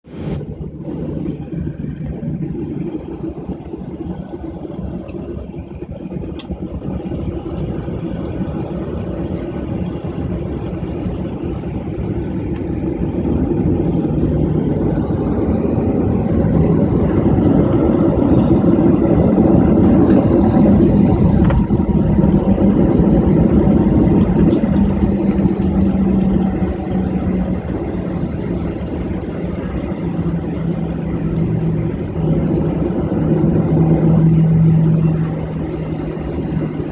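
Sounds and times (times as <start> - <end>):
high whine: 0.0 - 36.9
jet engine hum in cabin: 0.0 - 36.9.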